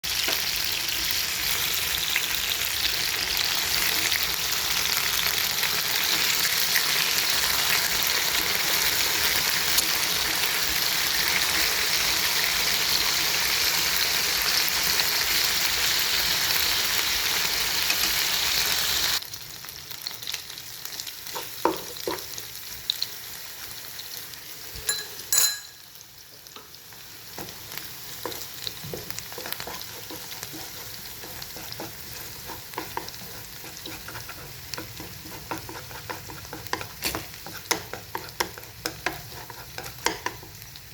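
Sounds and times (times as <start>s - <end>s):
fish frying in hot oil: 0.0s - 40.9s
utensil clinking on pan: 24.9s - 25.9s.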